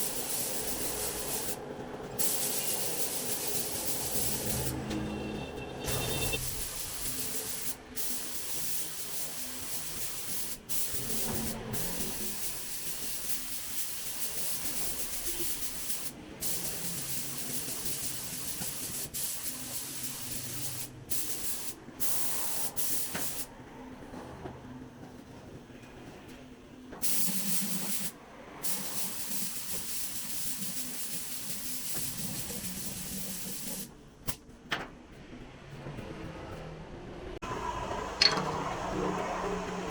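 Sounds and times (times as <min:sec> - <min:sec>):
paint spray hissing: 0:00.0 - 0:01.6, 0:02.2 - 0:04.7, 0:06.3 - 0:23.5, 0:27.0 - 0:34.4.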